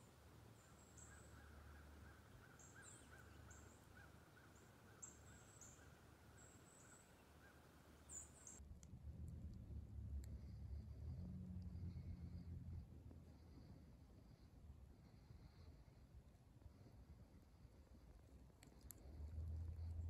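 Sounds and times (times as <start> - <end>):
lower repeated bird call: 0.0 - 8.6
faint low rumble: 0.0 - 20.0.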